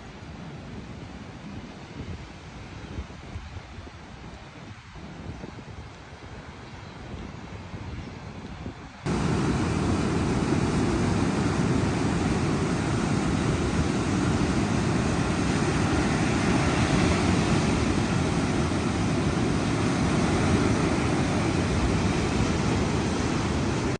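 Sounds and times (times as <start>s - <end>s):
ocean surf rushing on shore: 9.0s - 23.9s.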